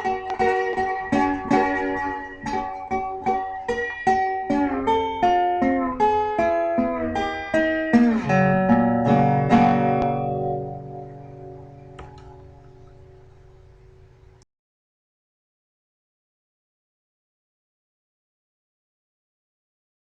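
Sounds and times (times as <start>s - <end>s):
plucked guitar notes: 0.0s - 14.4s.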